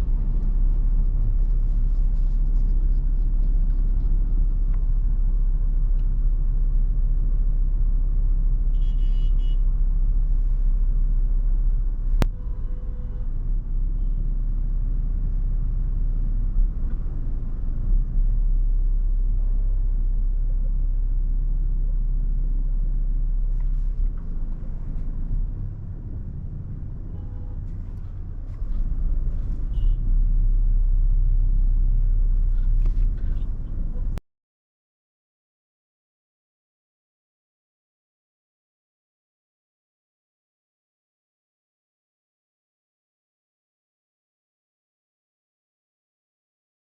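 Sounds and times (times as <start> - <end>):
car driving rumble: 0.0 - 34.2
wind noise: 24.0 - 30.3.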